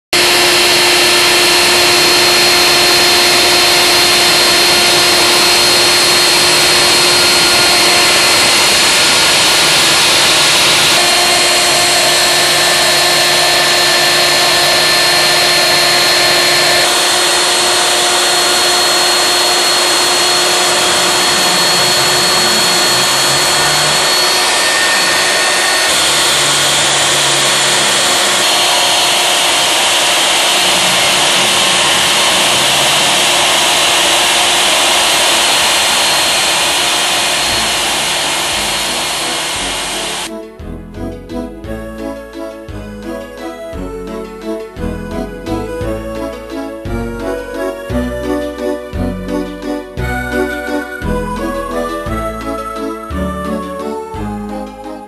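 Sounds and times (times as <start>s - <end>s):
router spindle milling acrylic: 0.2s - 40.3s.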